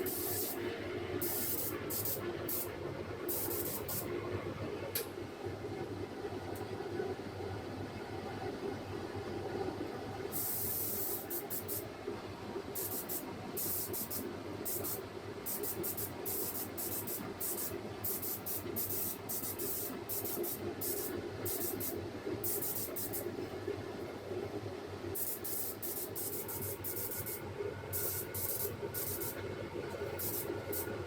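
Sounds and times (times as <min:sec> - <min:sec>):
spray gun hissing bursts: 0:00.0 - 0:00.6, 0:01.2 - 0:02.7, 0:03.3 - 0:04.1, 0:10.3 - 0:11.9, 0:12.8 - 0:23.3, 0:25.2 - 0:31.0
steady low hum: 0:00.0 - 0:07.2, 0:09.5 - 0:31.0.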